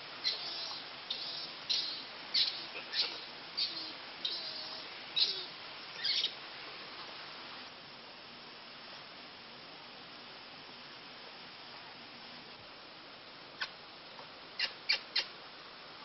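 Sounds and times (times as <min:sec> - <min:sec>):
tape hiss: 0:00.0 - 0:16.0
bird chirping: 0:00.2 - 0:06.3.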